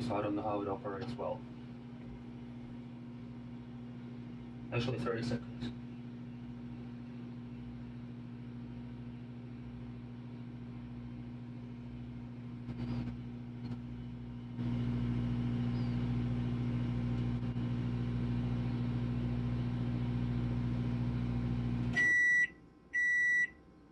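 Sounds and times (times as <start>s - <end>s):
microwave oven humming: 0.0s - 23.9s
microwave beep: 21.4s - 23.6s.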